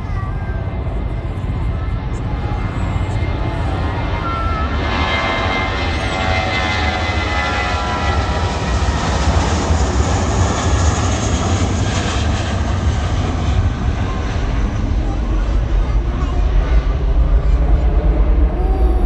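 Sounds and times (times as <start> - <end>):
jet engines running: 0.0 - 19.0
whining tone: 17.5 - 19.0.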